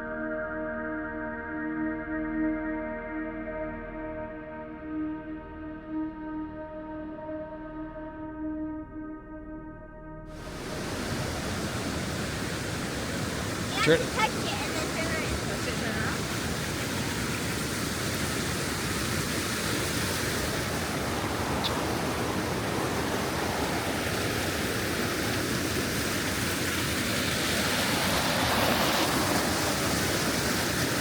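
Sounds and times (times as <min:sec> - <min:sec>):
waterfall rushing: 0:10.4 - 0:31.0.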